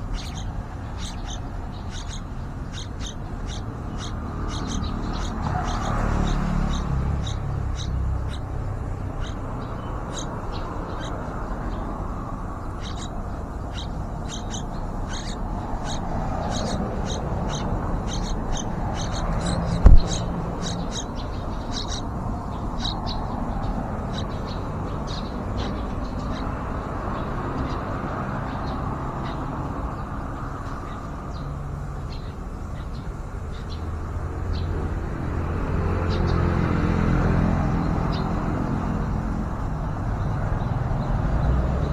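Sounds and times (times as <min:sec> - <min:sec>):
small birds chirping: 0:00.0 - 0:41.9
sharp knock: 0:19.7 - 0:20.3.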